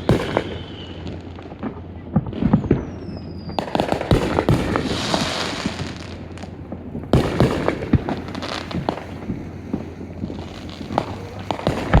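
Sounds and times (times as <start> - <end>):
fireworks bangs and crackles: 0.0 - 12.0
fireworks hissing fizz: 2.5 - 12.0.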